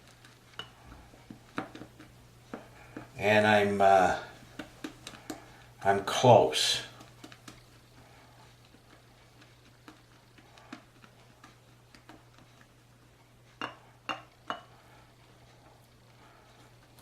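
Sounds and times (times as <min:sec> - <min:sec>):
brush tapping ceramic bowl: 0:00.5 - 0:03.6, 0:13.6 - 0:14.7.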